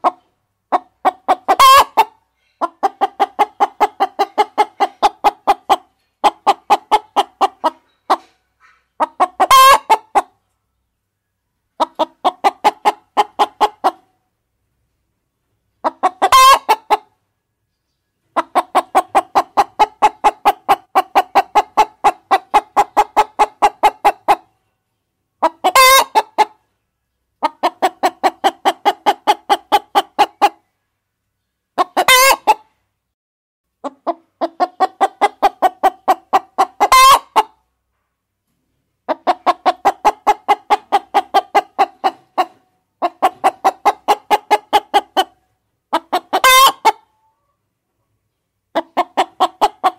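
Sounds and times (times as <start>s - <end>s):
hens clucking: 0.0s - 10.5s, 11.7s - 14.2s, 15.7s - 17.2s, 18.2s - 24.6s, 25.4s - 26.7s, 27.4s - 30.7s, 31.7s - 32.8s, 33.8s - 37.7s, 39.0s - 47.6s, 48.7s - 49.9s.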